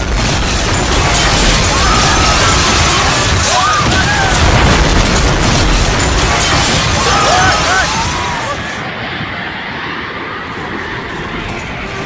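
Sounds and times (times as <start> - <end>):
earthquake rumbling roar: 0.0 - 8.9
people crying out: 1.5 - 4.8, 6.7 - 8.8.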